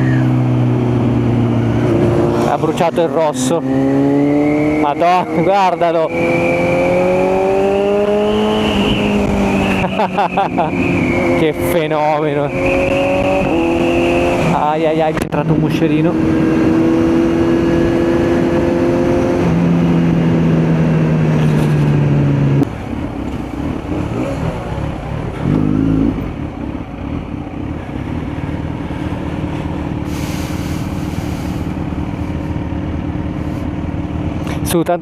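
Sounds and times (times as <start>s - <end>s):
motorcycle engine running: 15.3s - 35.0s.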